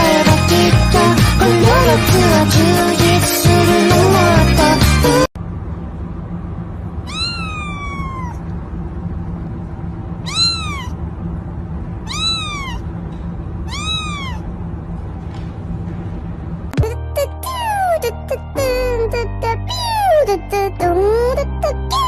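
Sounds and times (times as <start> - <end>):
kitten meowing: 7.0 - 8.4, 10.2 - 11.0, 12.0 - 12.8, 13.7 - 14.5.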